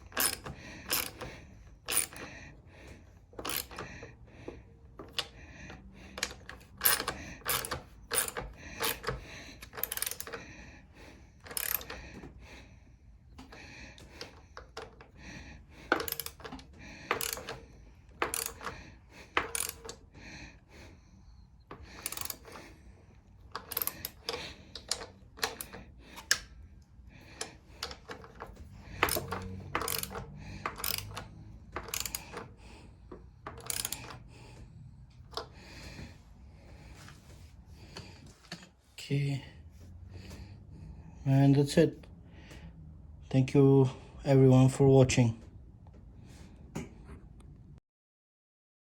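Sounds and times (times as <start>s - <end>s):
metal tools clinking: 0.0s - 2.3s, 3.4s - 4.0s, 6.1s - 10.4s, 15.8s - 20.0s, 21.7s - 22.7s, 23.5s - 26.4s, 27.4s - 32.5s, 33.4s - 34.5s.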